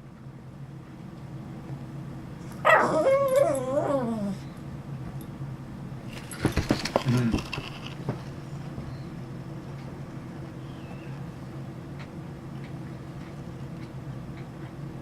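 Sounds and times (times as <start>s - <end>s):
puppy whining: 2.4s - 4.6s.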